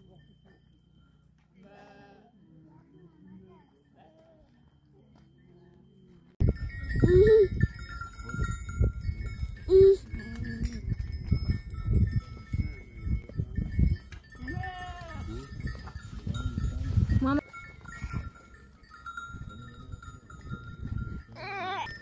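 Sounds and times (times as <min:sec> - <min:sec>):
neck bells clanking: 0:00.0 - 0:22.0
livestock bleating: 0:01.6 - 0:02.3, 0:14.4 - 0:15.3.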